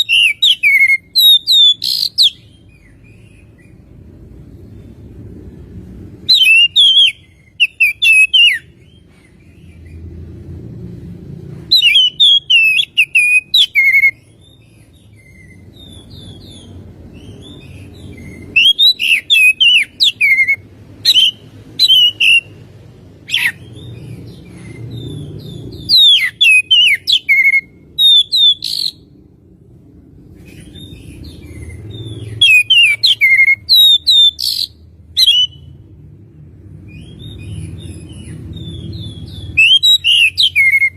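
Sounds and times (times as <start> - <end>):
bird singing whistled phrases: 0.0 - 3.0, 6.3 - 8.7, 11.7 - 14.3, 18.2 - 22.5, 25.7 - 29.0, 32.0 - 35.7, 38.6 - 40.9
low background rumble: 0.0 - 40.9.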